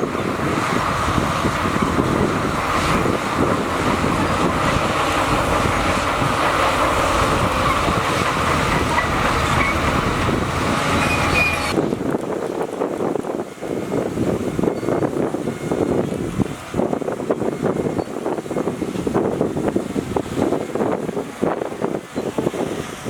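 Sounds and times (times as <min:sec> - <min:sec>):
mechanical clatter: 0:00.0 - 0:12.1
heavy diesel machine engine running: 0:00.0 - 0:23.0.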